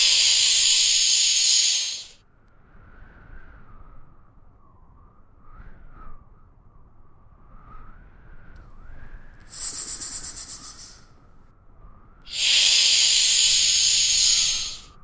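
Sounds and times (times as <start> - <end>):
snake hissing: 0.0 - 2.2, 9.4 - 11.1, 12.3 - 15.0.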